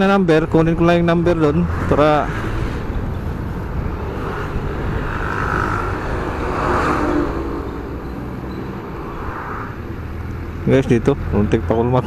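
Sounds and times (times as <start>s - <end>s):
wind rumble on microphone: 0.0s - 10.7s
motor vehicle running: 0.0s - 12.0s
road noise: 0.0s - 12.0s.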